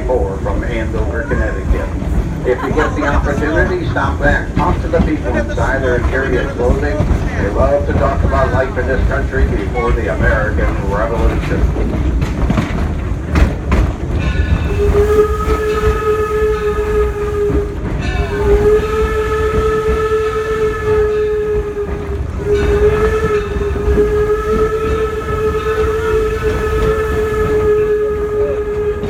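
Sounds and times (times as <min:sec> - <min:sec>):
train rumbling on rails: 0:00.0 - 0:29.0
steam whistle blasts: 0:14.6 - 0:29.0.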